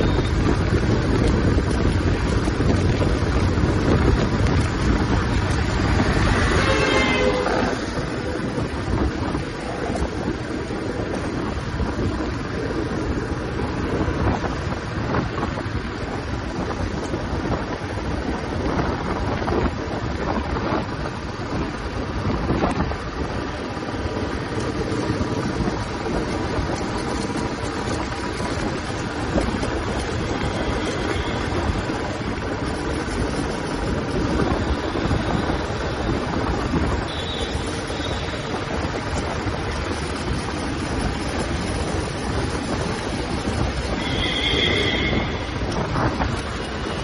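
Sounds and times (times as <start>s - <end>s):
motorcycle engine and exhaust running: 0.0s - 47.0s
wind noise on microphone: 0.0s - 47.0s.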